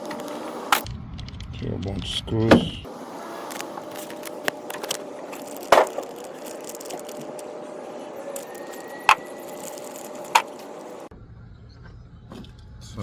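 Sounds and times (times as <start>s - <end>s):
steady background noise: 0.0s - 11.8s
metal parts clinking when handled: 3.5s - 7.5s, 8.3s - 11.1s.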